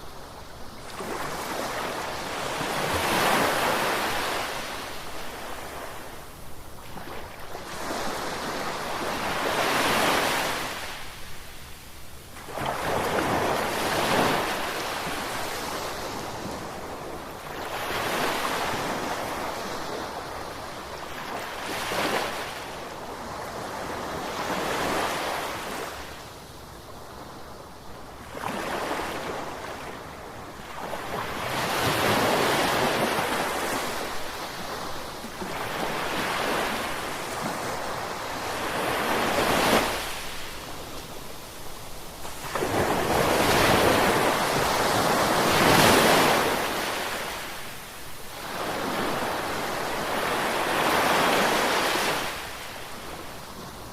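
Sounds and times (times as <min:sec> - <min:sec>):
ocean waves breaking on shore: 0:00.0 - 0:11.5, 0:12.3 - 0:26.3, 0:28.2 - 0:53.9.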